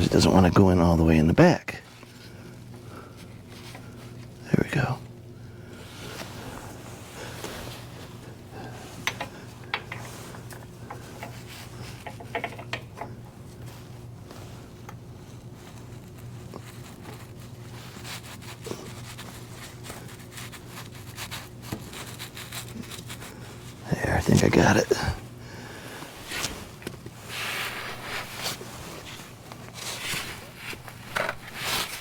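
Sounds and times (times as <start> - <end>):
steady low hum: 0.0 - 32.0
hands fitting filter into housing: 9.0 - 13.2.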